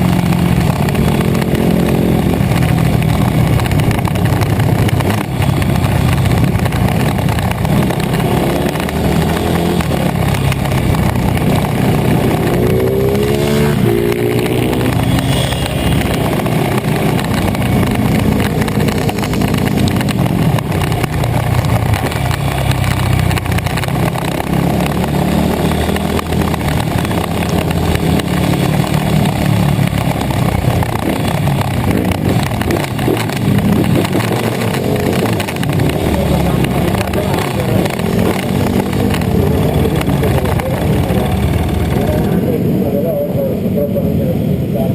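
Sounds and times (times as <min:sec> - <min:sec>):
pit bike engines running: 0:00.0 - 0:44.9
engine revving up: 0:07.7 - 0:20.7, 0:24.0 - 0:30.2, 0:30.9 - 0:43.9.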